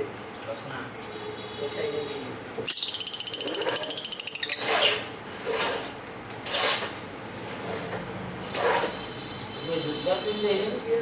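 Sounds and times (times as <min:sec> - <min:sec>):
lovebird squawks: 0:02.6 - 0:05.0
lovebird trill: 0:02.7 - 0:04.7.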